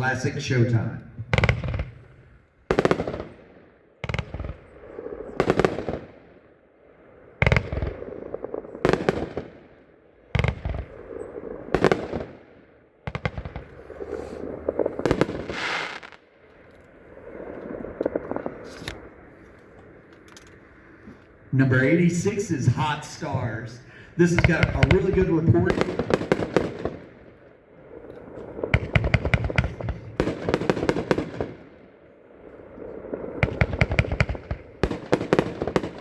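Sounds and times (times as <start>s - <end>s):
firework bangs with crackle: 1.2s - 2.0s, 2.7s - 3.4s, 4.0s - 4.6s, 5.4s - 6.1s, 7.4s - 8.1s, 8.8s - 9.6s, 10.4s - 11.0s, 11.7s - 12.4s, 13.1s - 16.2s, 24.3s - 27.2s, 28.7s - 31.7s, 33.4s - 36.0s.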